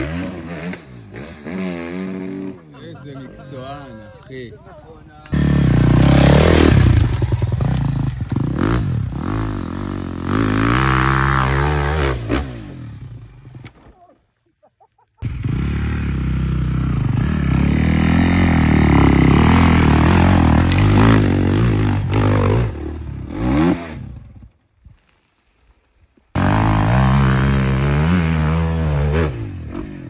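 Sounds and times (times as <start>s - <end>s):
dirt bike engine revving: 0.0s - 2.7s, 5.3s - 13.4s, 15.2s - 24.5s, 26.4s - 30.0s.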